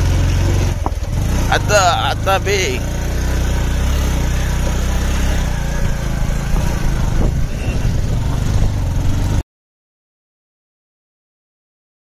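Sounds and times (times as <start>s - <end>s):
motorcycle engine running: 0.0s - 9.4s
wind noise: 5.7s - 9.4s.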